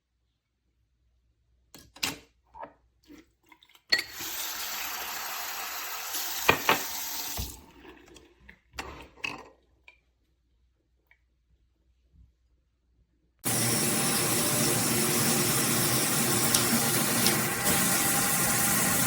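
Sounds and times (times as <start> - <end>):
running water: 4.1 - 8.3, 13.4 - 19.0.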